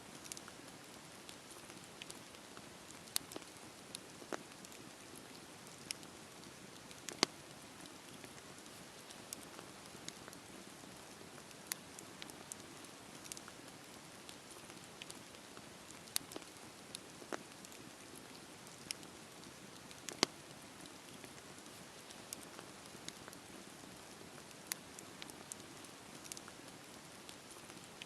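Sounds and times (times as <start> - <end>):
wood popping and crackling: 2.9 - 10.5, 15.9 - 23.4.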